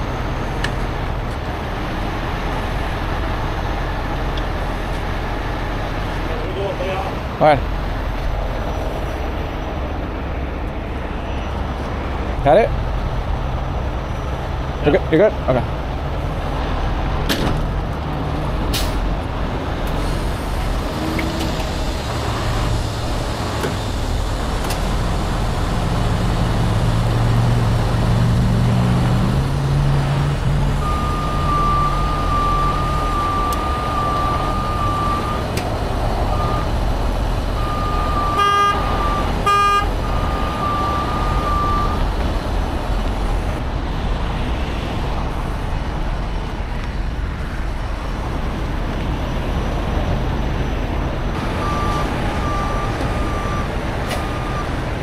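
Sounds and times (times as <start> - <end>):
truck diesel engine revving: 12.5 - 43.7, 48.2 - 55.0
reversing alarm beeping: 30.8 - 36.8, 37.5 - 42.1, 51.4 - 54.8.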